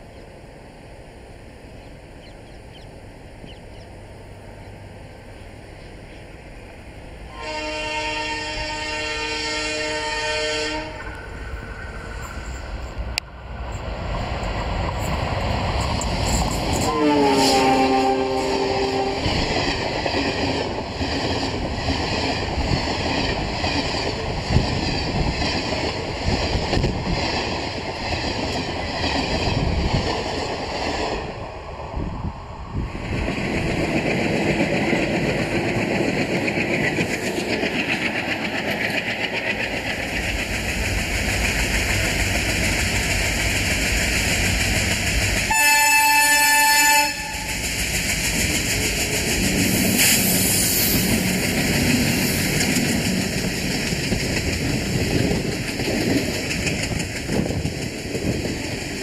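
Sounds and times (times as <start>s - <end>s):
diesel locomotive running: 0.0s - 59.0s
locomotive horn: 7.3s - 11.1s, 16.8s - 19.4s, 45.5s - 47.6s
train wheels clicking over rail joints: 10.9s - 31.5s, 32.8s - 59.0s.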